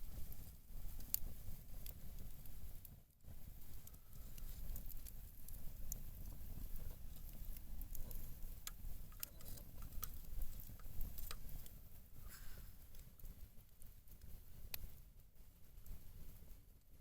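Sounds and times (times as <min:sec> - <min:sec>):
sharp clicks and crackles: 0:03.7 - 0:11.8.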